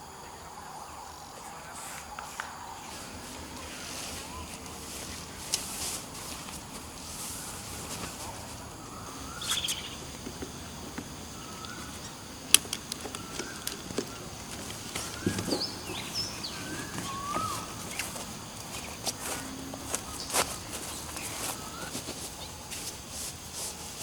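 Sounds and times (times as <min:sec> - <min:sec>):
birds chirping: 0:00.0 - 0:24.0
faint high drone: 0:00.0 - 0:24.0
gear handling clicks and knocks: 0:12.5 - 0:22.2.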